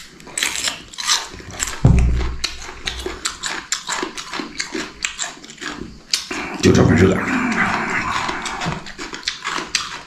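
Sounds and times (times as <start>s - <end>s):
man eating noisily: 0.0s - 10.0s
wet slurps and chewing: 0.0s - 10.0s
dull thump: 1.7s - 3.1s.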